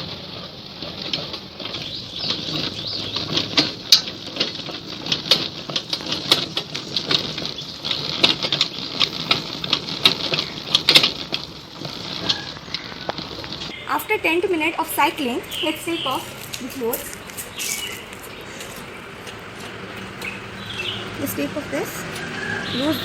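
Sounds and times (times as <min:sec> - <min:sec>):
washing machine drum clicking and rattling: 0:00.0 - 0:13.7.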